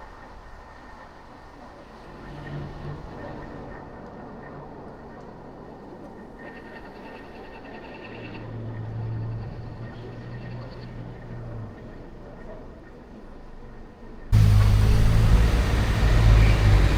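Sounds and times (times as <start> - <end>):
low drone: 14.4 - 16.9
road and engine noise: 14.4 - 16.9.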